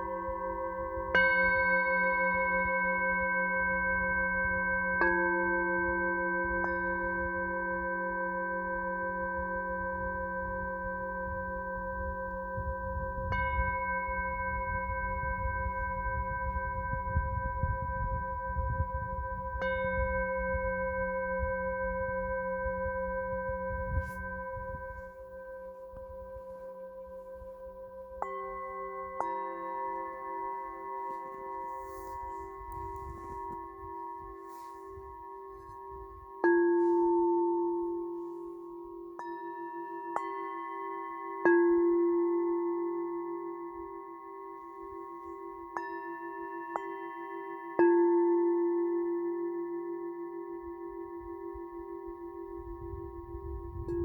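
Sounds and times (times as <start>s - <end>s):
singing bowls ringing: 0.0s - 54.0s.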